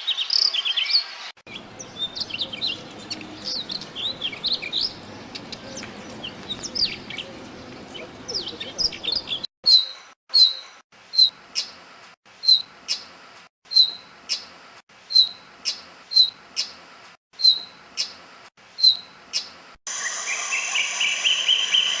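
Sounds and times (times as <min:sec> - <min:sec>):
bird calling sharp paired notes: 0:01.5 - 0:11.7
bird chattering: 0:01.5 - 0:11.7, 0:15.1 - 0:16.8, 0:17.4 - 0:18.2, 0:18.8 - 0:19.5.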